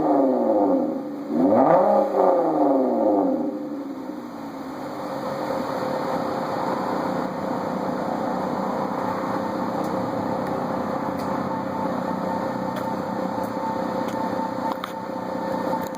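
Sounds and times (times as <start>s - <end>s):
car exhaust idling: 0.0s - 15.9s.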